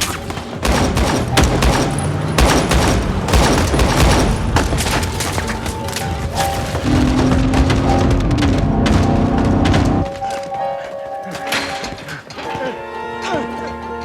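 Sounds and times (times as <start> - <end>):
rapid gunshots: 0.0 - 10.0
heavy booms: 0.5 - 5.5.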